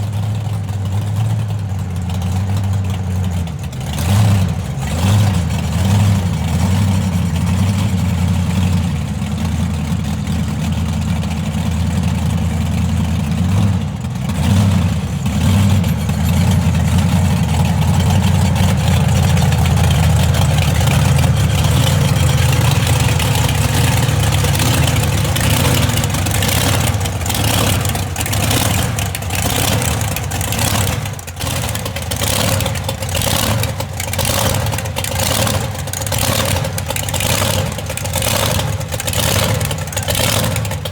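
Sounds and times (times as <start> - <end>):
truck engine running loud: 0.0 - 40.9
sharp knocks and clatter: 13.4 - 40.9.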